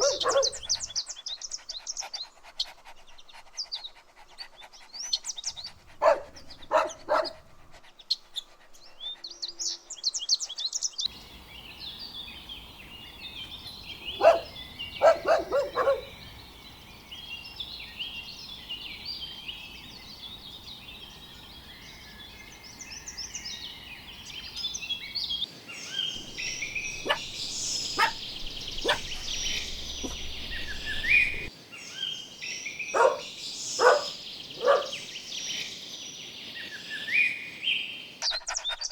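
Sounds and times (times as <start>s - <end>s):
dogs barking: 0.0s - 1.0s, 5.6s - 7.7s, 13.9s - 16.4s, 26.2s - 31.5s, 32.9s - 35.1s
birdsong chirping: 0.0s - 38.9s.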